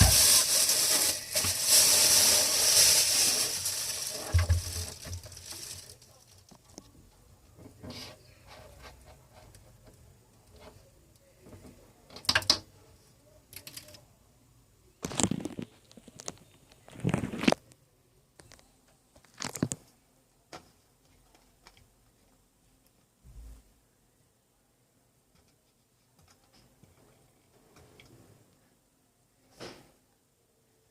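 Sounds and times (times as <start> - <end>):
handling rustling and knocking: 0.0 - 6.9.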